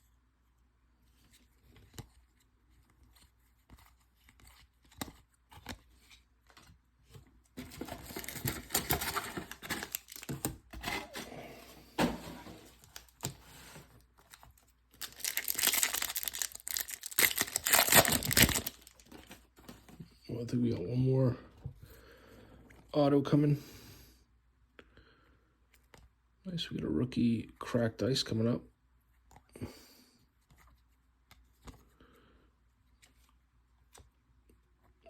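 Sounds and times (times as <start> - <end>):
foil wrappers torn and crinkled: 7.8 - 11.2, 15.0 - 19.4.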